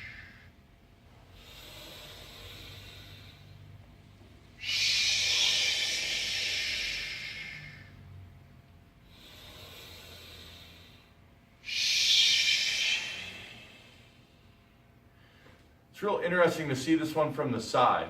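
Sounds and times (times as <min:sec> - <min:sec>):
soft breathing: 0:00.0 - 0:15.9
breath hissed through teeth: 0:04.6 - 0:07.9.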